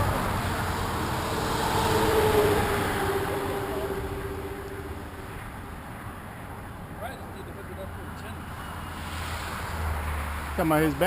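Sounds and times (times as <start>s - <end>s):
motorcycle engine passing: 0.0s - 5.6s.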